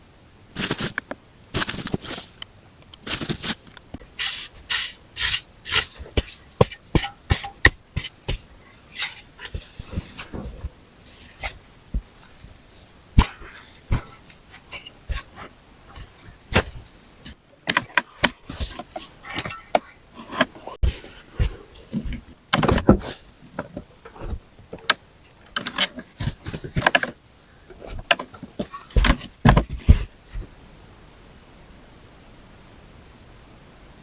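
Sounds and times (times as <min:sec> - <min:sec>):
rustling of materials: 0:00.5 - 0:30.6
sharp knocks and clatters: 0:05.7 - 0:10.8.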